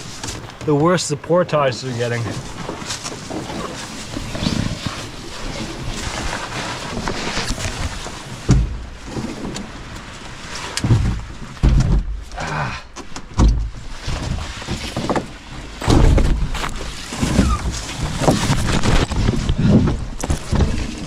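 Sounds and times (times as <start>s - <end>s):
dull low thumps: 8.4s - 9.3s, 10.8s - 21.0s
hard breathing: 12.3s - 13.0s
rustling handling noise: 13.0s - 21.0s.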